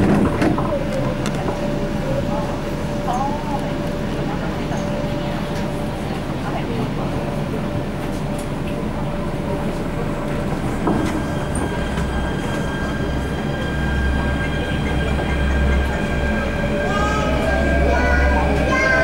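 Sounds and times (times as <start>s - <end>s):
train wheels rumbling: 0.0s - 19.0s
high whining tones: 10.8s - 19.0s.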